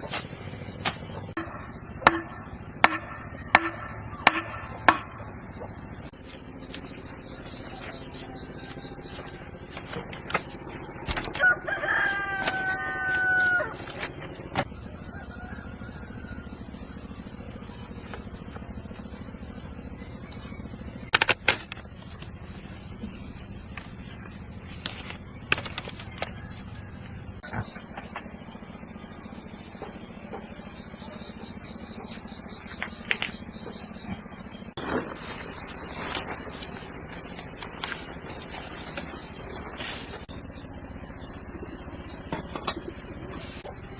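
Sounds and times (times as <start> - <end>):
high insect drone: 0.0 - 43.9
rooster crowing: 11.2 - 17.2, 26.2 - 27.4.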